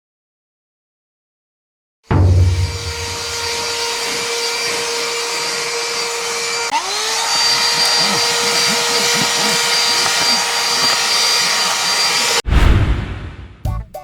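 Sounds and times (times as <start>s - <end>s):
handheld vacuum motor whine: 2.4s - 12.4s.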